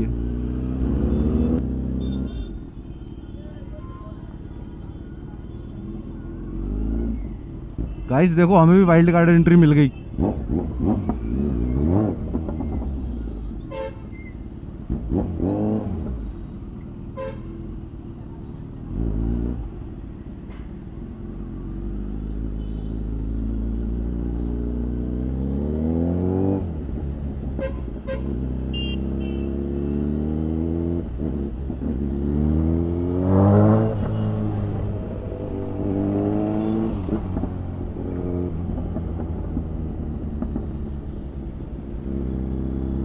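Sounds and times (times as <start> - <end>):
motorcycle engine shifting gears: 10.2 - 16.9, 18.8 - 43.0.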